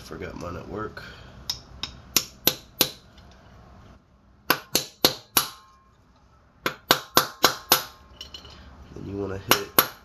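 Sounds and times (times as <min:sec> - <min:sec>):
hammer tapping on metal: 0:09.5 - 0:10.0.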